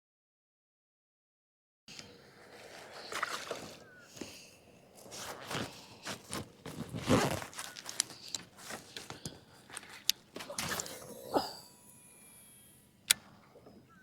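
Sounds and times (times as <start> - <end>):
fishing gear knocking and rustling: 2.6 - 11.6.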